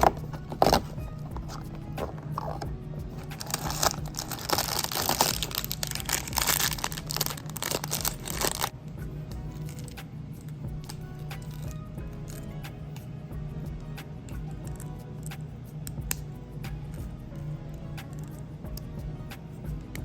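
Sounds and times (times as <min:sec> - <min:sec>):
background music: 0:00.0 - 0:20.0
packaging tearing and crinkling: 0:03.3 - 0:08.7.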